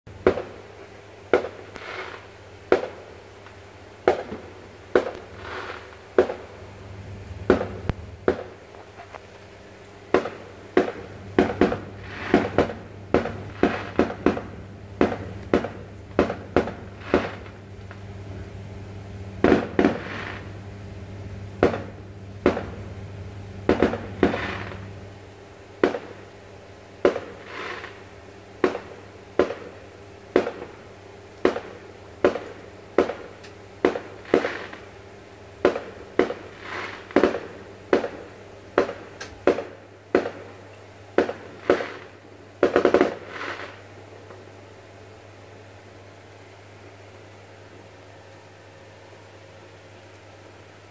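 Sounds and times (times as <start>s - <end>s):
fireworks bangs: 0.1s - 6.7s, 7.4s - 9.2s, 10.1s - 18.0s, 19.4s - 20.6s, 21.6s - 22.9s, 23.6s - 25.0s, 25.8s - 26.4s, 27.0s - 35.0s, 35.6s - 44.4s
fireworks crackling bursts: 0.1s - 48.3s
steady low hum: 0.1s - 50.9s.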